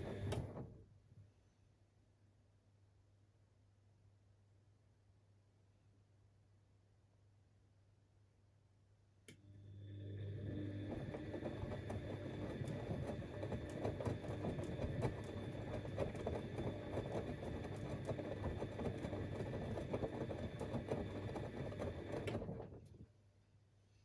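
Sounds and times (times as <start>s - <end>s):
washing machine motor hum and whine: 0.0s - 0.8s, 9.3s - 23.1s
laundry and water tumbling: 10.3s - 23.1s.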